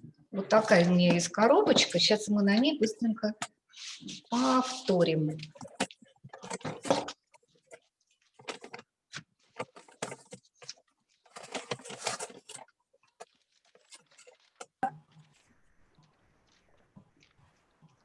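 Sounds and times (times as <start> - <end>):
wrapping paper rustling: 3.7 - 18.0.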